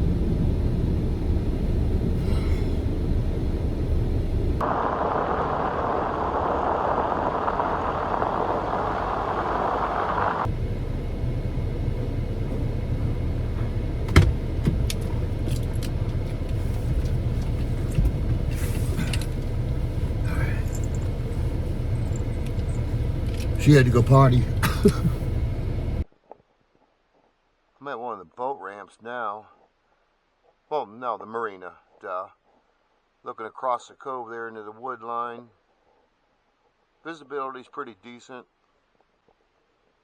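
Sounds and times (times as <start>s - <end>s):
car cabin low rumble: 0.0s - 26.0s
short jingles: 18.7s - 25.2s.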